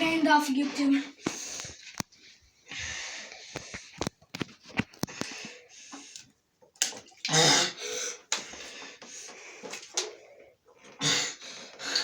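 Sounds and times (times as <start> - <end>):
person breathing hard: 2.6 - 4.1, 7.4 - 12.0.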